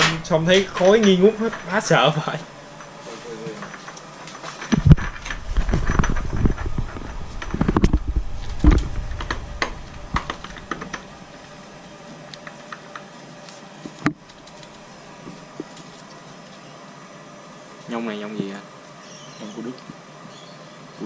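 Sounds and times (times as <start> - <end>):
tools clicking and knocking on metal: 0.0 - 2.0.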